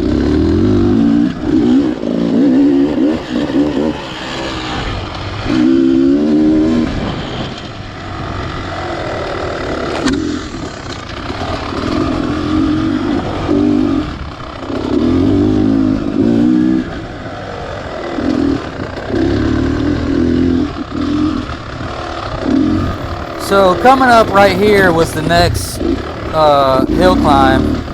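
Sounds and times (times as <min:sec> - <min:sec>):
dirt bike engine revving: 0:22.8 - 0:27.9.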